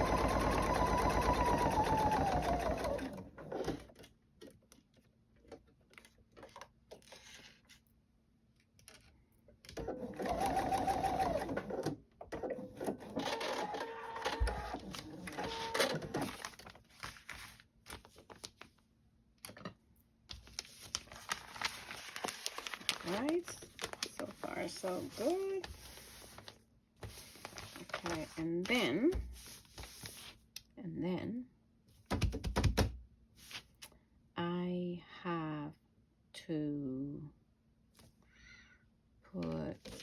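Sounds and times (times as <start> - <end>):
sewing machine motor whine: 0.0 - 3.2.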